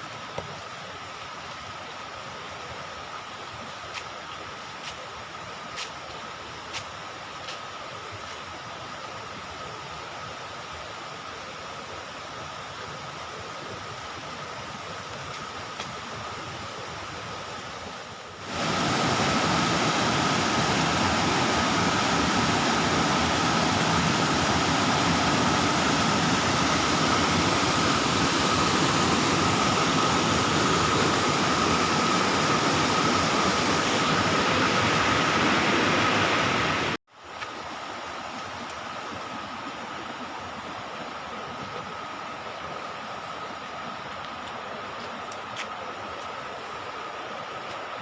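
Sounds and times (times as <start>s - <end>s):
waterfall rushing: 18.4s - 37.0s.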